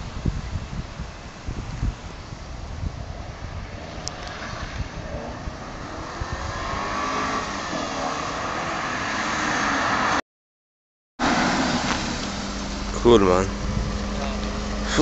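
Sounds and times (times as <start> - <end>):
car engine accelerating: 3.2 - 10.2, 11.2 - 15.0.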